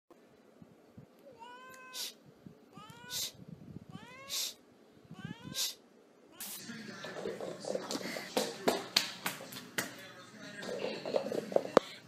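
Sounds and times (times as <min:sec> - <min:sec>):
cat meowing: 0:01.3 - 0:06.6
sharp hiss-like noise burst: 0:01.9 - 0:02.2, 0:04.3 - 0:04.6, 0:05.6 - 0:05.8, 0:06.4 - 0:06.6.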